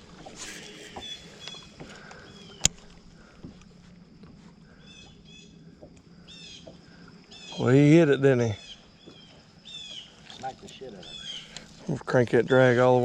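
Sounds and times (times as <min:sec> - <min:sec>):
open-water ambience: 0:00.0 - 0:13.0
faint bird chirps: 0:00.4 - 0:03.4, 0:04.6 - 0:11.9.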